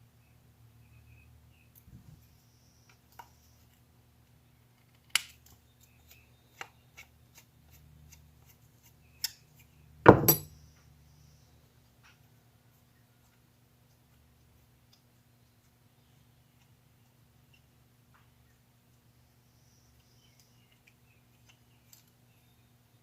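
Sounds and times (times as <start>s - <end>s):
small parts and tools clinking: 10.1s - 10.5s
tools clattering: 10.1s - 10.5s.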